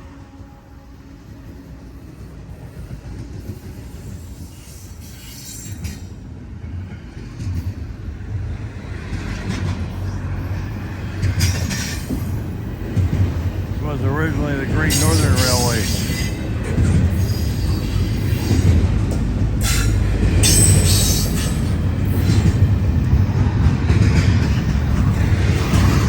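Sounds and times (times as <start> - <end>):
train engine and wheel rumble: 0.0 - 26.0
rail clatter: 5.2 - 26.0.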